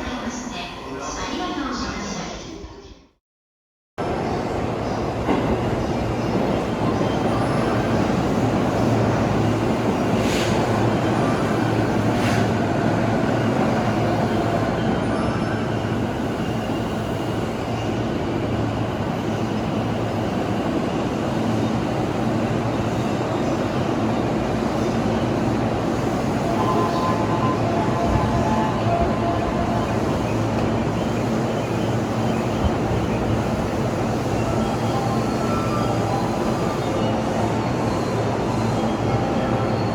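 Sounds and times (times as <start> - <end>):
train rumbling: 4.0 - 39.9.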